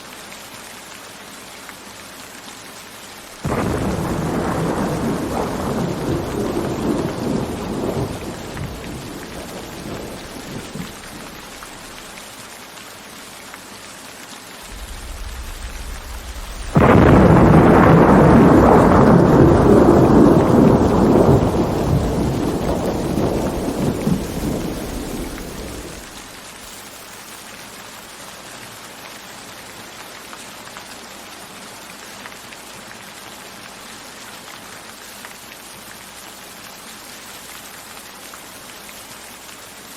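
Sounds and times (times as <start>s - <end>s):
steady rain: 0.0s - 39.9s
loud thunderclap: 3.4s - 12.0s, 14.6s - 26.2s
thunder rumbling: 3.4s - 12.1s, 14.6s - 26.3s.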